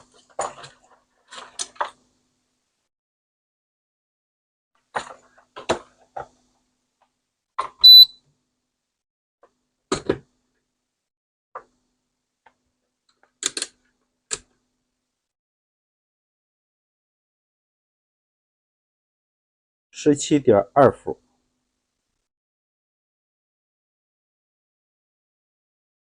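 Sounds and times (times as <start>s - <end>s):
high electronic beep: 7.8s - 8.2s.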